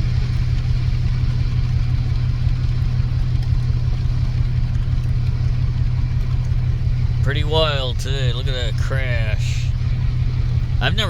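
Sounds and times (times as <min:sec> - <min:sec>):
rain: 0:00.0 - 0:11.0
van engine idling: 0:00.0 - 0:11.0.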